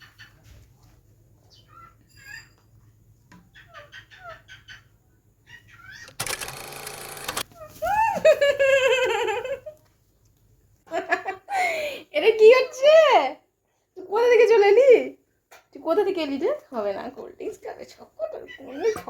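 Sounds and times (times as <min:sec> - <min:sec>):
parakeets chirping: 0:03.5 - 0:06.1.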